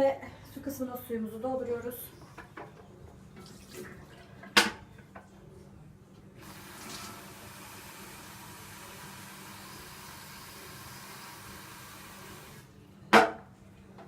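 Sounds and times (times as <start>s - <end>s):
water pouring into tank: 6.4s - 8.7s.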